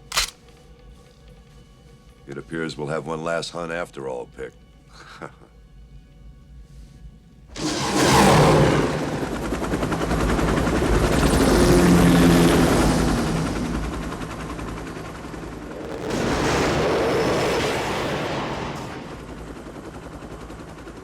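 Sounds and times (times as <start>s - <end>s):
rapid gunfire: 0.0s - 0.3s, 7.6s - 21.0s.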